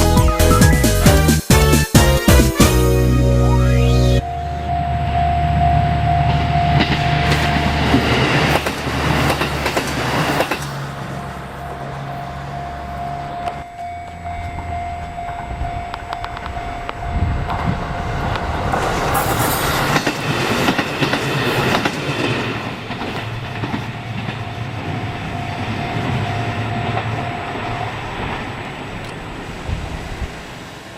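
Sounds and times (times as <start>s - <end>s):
crossing warning signal tone: 2.0s - 8.4s, 10.7s - 20.0s, 24.0s - 29.4s
train wheels clattering: 6.3s - 11.3s, 13.5s - 30.0s.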